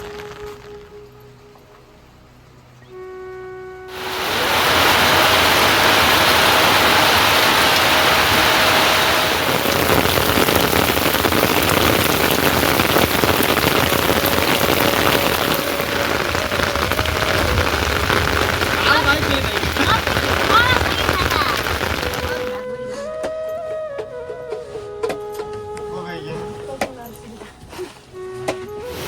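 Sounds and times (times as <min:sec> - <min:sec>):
rain falling: 0:00.0 - 0:01.2, 0:03.9 - 0:22.6.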